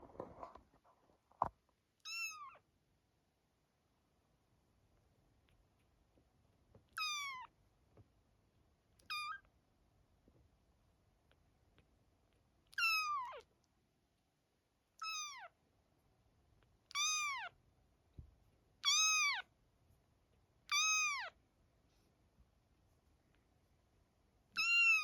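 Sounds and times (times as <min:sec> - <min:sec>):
kitten meowing: 0:02.0 - 0:02.6, 0:06.9 - 0:07.5, 0:09.0 - 0:09.5, 0:12.7 - 0:13.5, 0:15.0 - 0:15.6, 0:16.9 - 0:17.6, 0:18.8 - 0:19.5, 0:20.7 - 0:21.4, 0:24.5 - 0:25.0.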